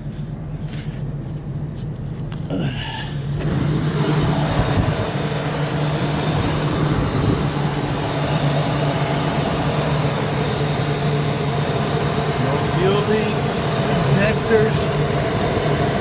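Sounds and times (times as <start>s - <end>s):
motorhome engine fast idle: 0.4s - 16.0s.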